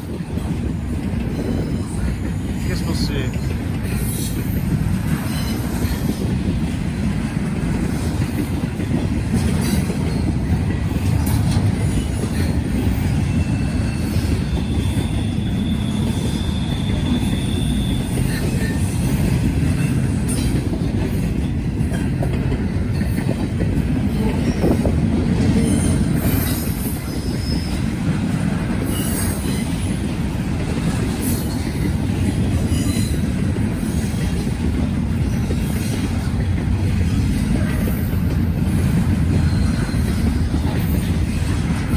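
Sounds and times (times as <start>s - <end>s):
freight train wheels rumbling: 0.0s - 41.9s
wheel squeal: 4.1s - 6.2s, 11.1s - 20.5s, 25.5s - 28.1s, 28.8s - 30.0s, 32.6s - 34.4s, 38.8s - 41.6s.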